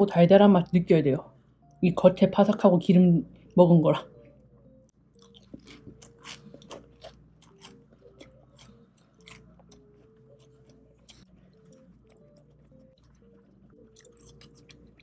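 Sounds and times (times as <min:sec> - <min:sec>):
quiet background music: 0:00.0 - 0:15.0
crunchy chewing of fried chicken: 0:05.0 - 0:15.0.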